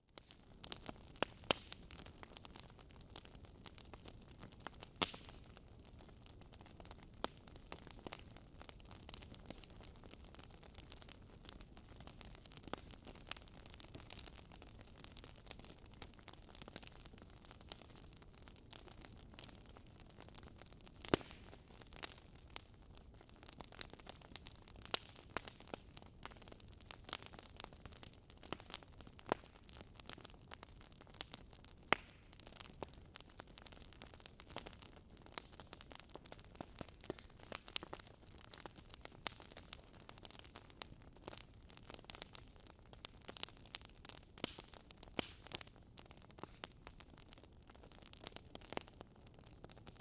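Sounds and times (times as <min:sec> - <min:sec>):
wood fire crackling: 0:00.0 - 0:50.0
loud fire snaps: 0:00.2 - 0:02.6, 0:04.6 - 0:05.5, 0:21.0 - 0:22.6, 0:23.6 - 0:30.2, 0:31.2 - 0:47.3.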